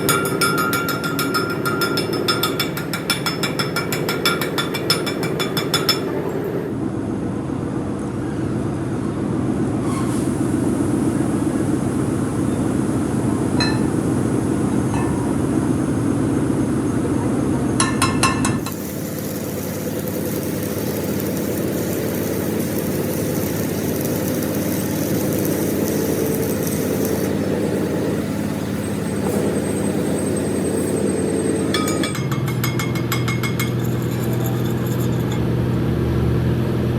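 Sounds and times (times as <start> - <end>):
workshop machinery drone: 0.0 - 36.9
ringing metal clinks: 13.6 - 14.0, 31.8 - 35.5.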